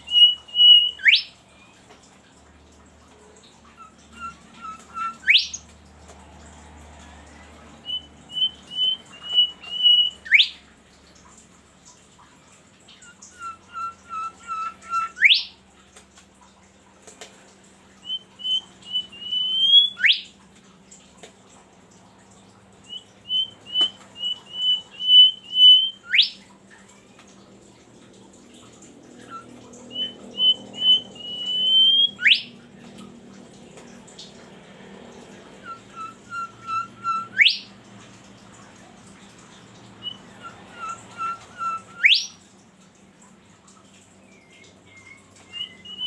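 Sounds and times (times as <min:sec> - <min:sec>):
songbird singing whistled phrases: 0:00.0 - 0:01.4, 0:03.8 - 0:05.6, 0:07.8 - 0:10.6, 0:12.9 - 0:15.6, 0:18.0 - 0:20.3, 0:22.9 - 0:26.4, 0:29.2 - 0:32.6, 0:35.6 - 0:37.8, 0:40.0 - 0:42.4, 0:44.4 - 0:46.0.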